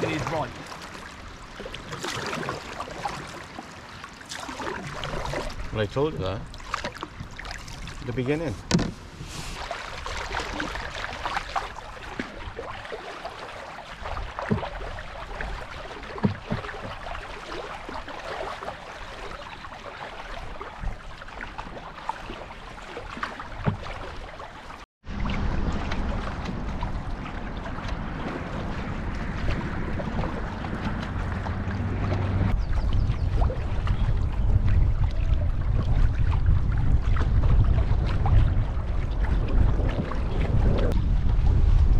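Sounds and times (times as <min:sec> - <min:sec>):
paddle swishing water: 0:00.0 - 0:41.9
rushing wind or water noise: 0:00.0 - 0:41.9.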